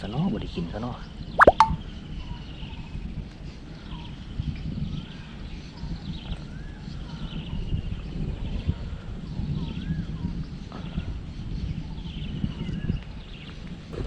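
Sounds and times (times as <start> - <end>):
high chirps: 1.4 - 1.8.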